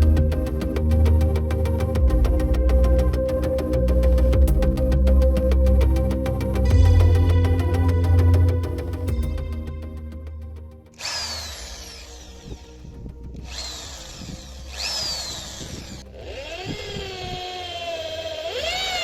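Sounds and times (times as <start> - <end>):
electric drill motor whining: 11.0 - 19.0.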